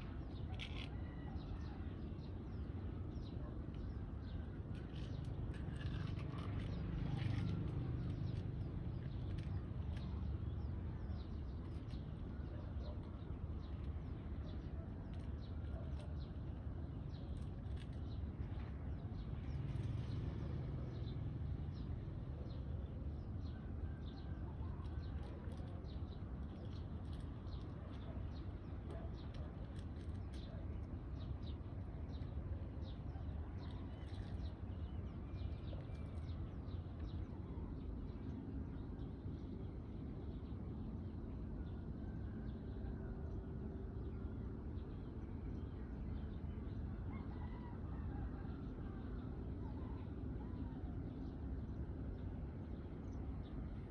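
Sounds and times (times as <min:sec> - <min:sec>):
steady low rumble: 0:48.1 - 0:53.9.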